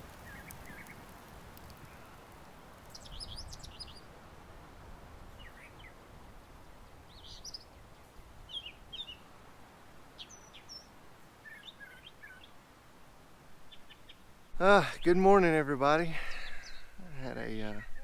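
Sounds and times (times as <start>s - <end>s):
birds chirping: 0.0s - 4.2s, 5.3s - 6.0s, 6.7s - 9.3s, 10.1s - 12.6s, 13.6s - 18.0s
faint low background noise: 0.0s - 18.0s.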